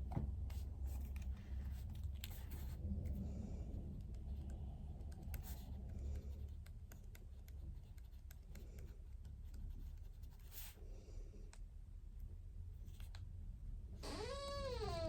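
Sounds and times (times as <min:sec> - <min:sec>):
pen scratching on paper: 0:05.3 - 0:10.8.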